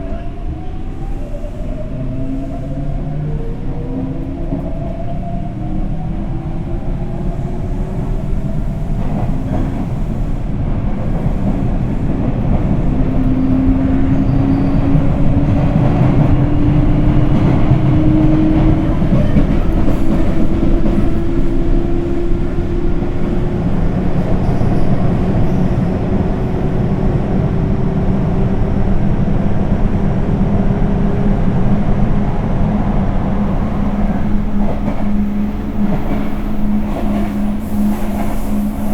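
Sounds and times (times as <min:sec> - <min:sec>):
wheels clattering on rail: 0:11.0 - 0:26.3.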